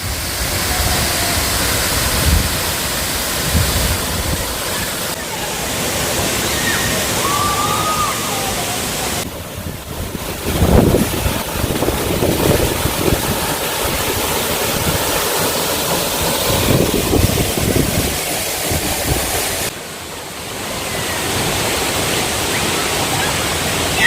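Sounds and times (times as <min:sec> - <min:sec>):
waterfall rushing: 0:00.0 - 0:24.0
wind buffeting microphone: 0:03.4 - 0:04.7, 0:09.2 - 0:15.5, 0:16.1 - 0:19.7.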